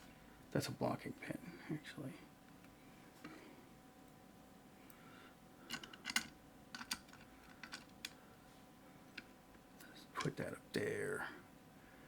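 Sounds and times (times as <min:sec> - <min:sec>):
small metal lock parts clicking: 0:05.7 - 0:08.2.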